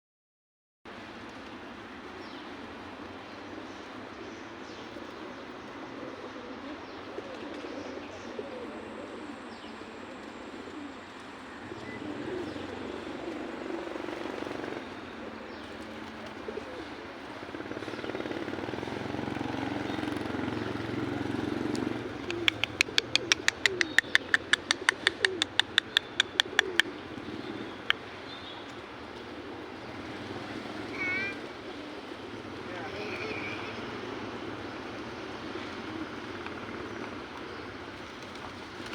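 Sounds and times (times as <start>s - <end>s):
pigeons cooing: 3.4s - 38.9s
fast sharp clicks: 21.7s - 26.9s.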